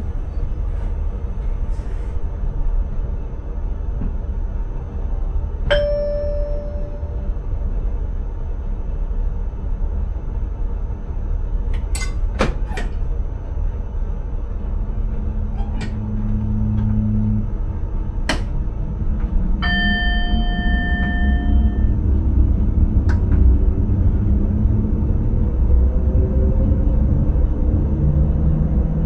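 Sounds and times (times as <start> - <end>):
train running low rumble: 0.0 - 29.0
bell-like warning chime: 5.7 - 7.3, 19.6 - 22.0
rising whine: 15.0 - 29.0.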